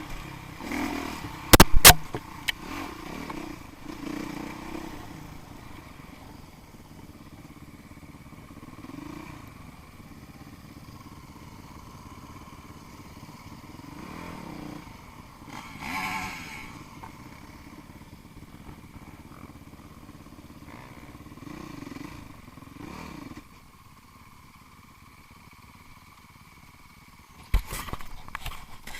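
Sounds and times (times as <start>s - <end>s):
distant motorcycle engines revving: 0.0s - 28.9s.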